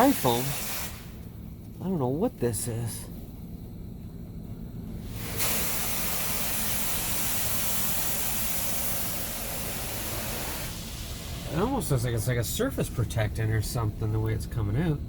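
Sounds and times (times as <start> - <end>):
spray nozzles hissing on car: 0.0 - 1.3, 5.0 - 13.2
low machinery hum: 0.0 - 15.0.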